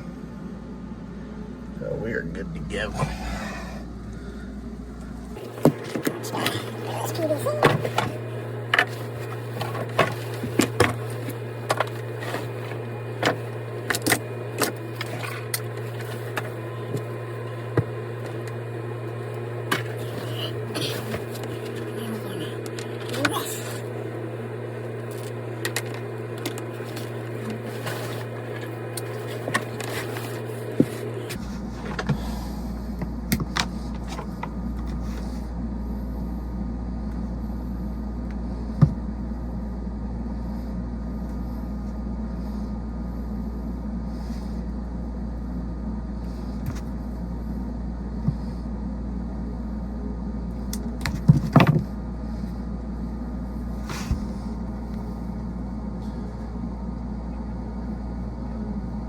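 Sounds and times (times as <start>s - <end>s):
hvac machine hum: 0.0s - 59.0s.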